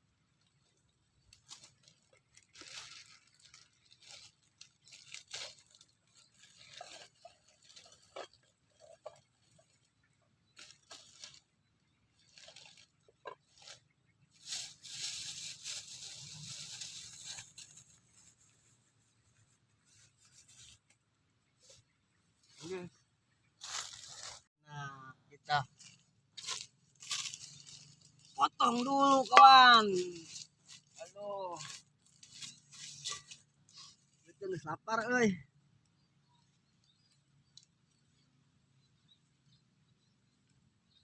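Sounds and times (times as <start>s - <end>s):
tearing and crunching: 1.2s - 9.2s, 25.9s - 34.1s.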